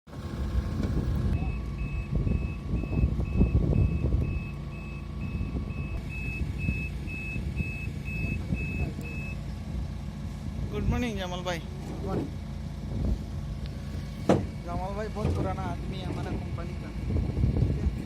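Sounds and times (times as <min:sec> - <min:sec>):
heavy engine rumbling: 0:00.0 - 0:18.0
reversing alarm beeping: 0:01.4 - 0:09.5.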